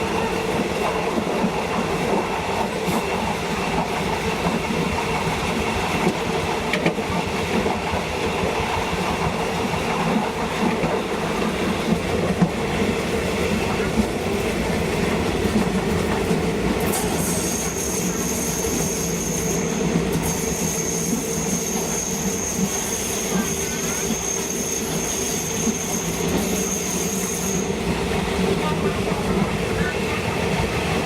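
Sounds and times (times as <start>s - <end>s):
train rumbling along track: 0.0s - 31.0s
train wheels squealing: 16.9s - 27.9s.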